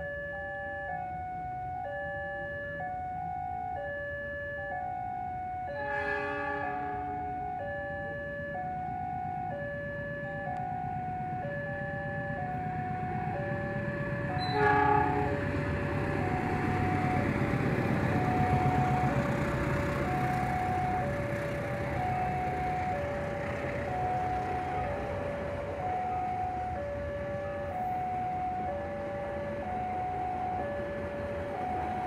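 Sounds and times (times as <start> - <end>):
rumble of approaching train: 0.0 - 32.0
two-tone warning alarm: 0.0 - 32.0
train horn blast: 5.7 - 7.2, 14.4 - 15.5.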